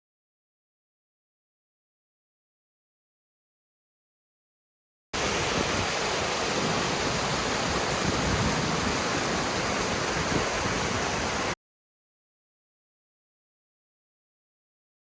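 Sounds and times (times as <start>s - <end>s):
fast-flowing river: 5.2s - 11.6s
small waterfall rushing: 5.2s - 11.6s.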